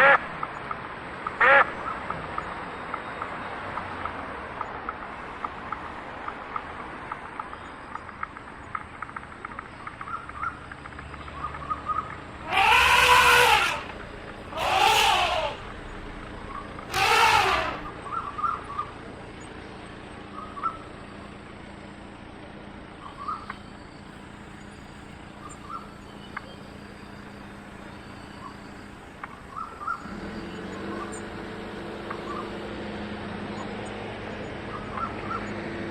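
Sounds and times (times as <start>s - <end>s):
animal drawn-out calls: 1.4s - 1.7s, 12.4s - 18.7s.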